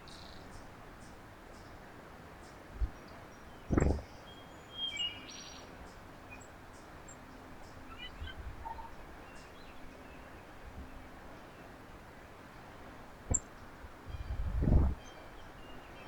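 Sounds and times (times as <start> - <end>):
outdoor background noise: 0.0 - 16.0
loud low thump: 3.7 - 4.0.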